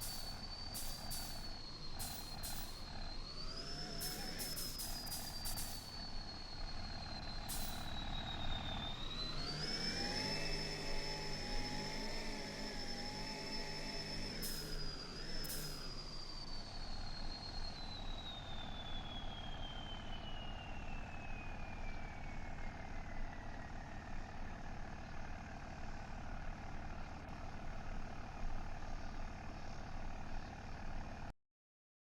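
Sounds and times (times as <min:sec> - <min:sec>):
high whine falling in pitch: 0:00.0 - 0:22.6.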